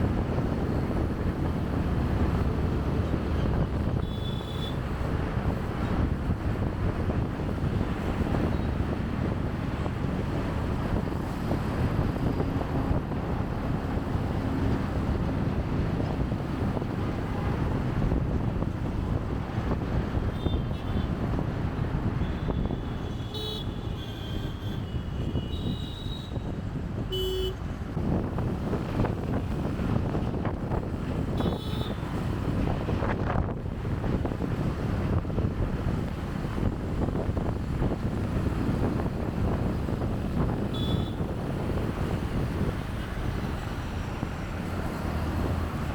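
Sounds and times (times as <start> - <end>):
motorbike engine and road noise: 0.0 - 45.9
wind rumble on microphone: 0.0 - 45.9
vehicle horn toots: 4.0 - 4.8, 20.3 - 21.1, 22.2 - 26.5, 27.1 - 27.6, 31.4 - 32.0, 40.7 - 41.3.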